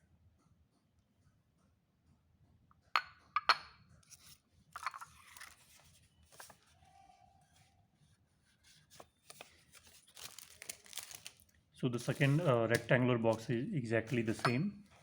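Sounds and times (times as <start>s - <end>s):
glass containers knocking: 3.0s - 3.8s, 14.1s - 14.8s
rustling: 8.4s - 15.0s.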